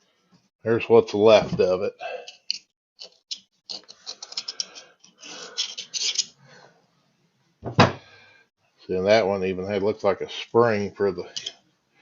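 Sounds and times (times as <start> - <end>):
small metal parts clicking and scraping: 2.3 - 6.4.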